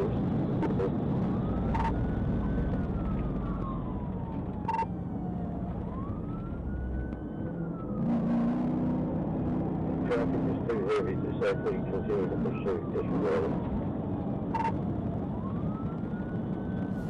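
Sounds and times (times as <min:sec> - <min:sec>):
police siren wailing: 0:00.0 - 0:17.0
road and engine noise: 0:00.0 - 0:17.0
short siren blips: 0:01.5 - 0:02.1, 0:04.6 - 0:05.0, 0:14.4 - 0:14.9.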